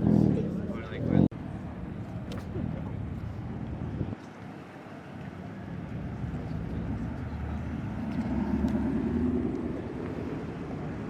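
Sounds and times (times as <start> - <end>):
motor vehicle passing: 6.0 - 11.0.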